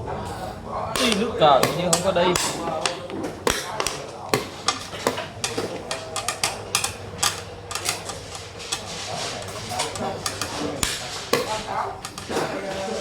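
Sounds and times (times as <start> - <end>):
game pieces clacking on board: 1.0 - 13.0.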